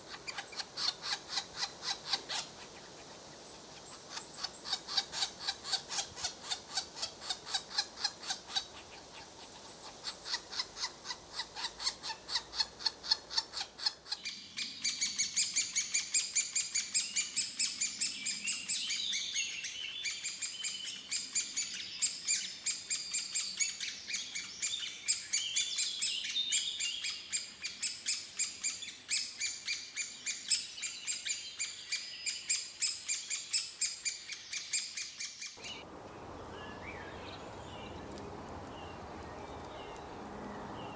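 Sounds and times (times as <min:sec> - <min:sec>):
bird chirping: 0:14.1 - 0:40.9.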